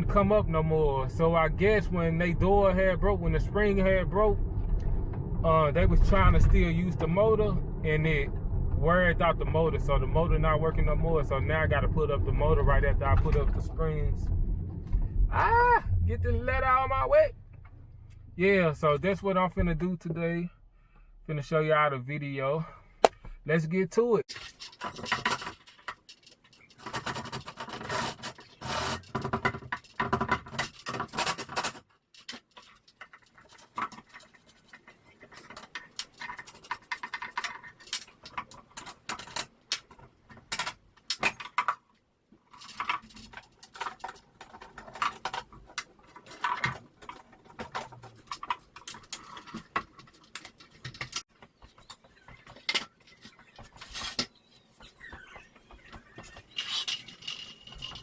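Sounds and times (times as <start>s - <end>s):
tools clicking and rattling: 24.3s - 41.8s, 42.5s - 54.4s, 55.6s - 58.0s.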